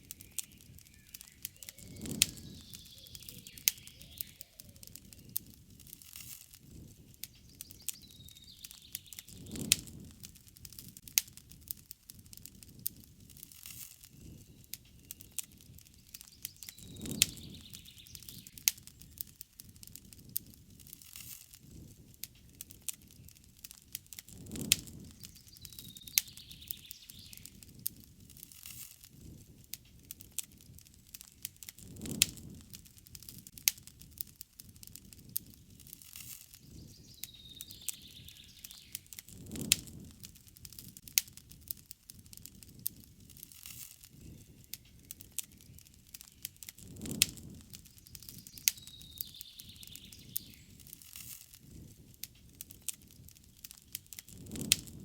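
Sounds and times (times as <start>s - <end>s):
faint bird call: 0.0s - 5.3s
campfire crackling: 0.0s - 55.0s
flames rushing: 0.0s - 55.0s.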